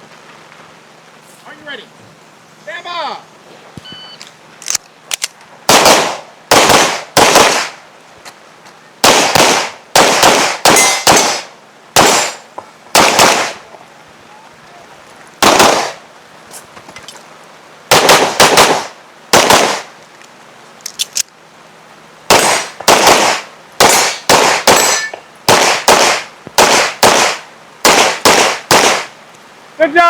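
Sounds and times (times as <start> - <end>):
gunshots: 5.7 - 7.8, 9.0 - 13.6, 15.4 - 16.0, 17.9 - 19.9, 22.3 - 29.1.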